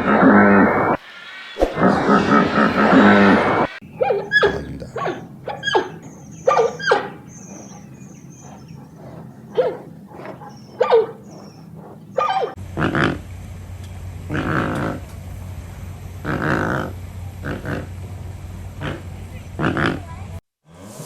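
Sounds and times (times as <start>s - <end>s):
faint high chirping: 3.8s - 12.6s
animal barks or yelps: 4.0s - 12.6s.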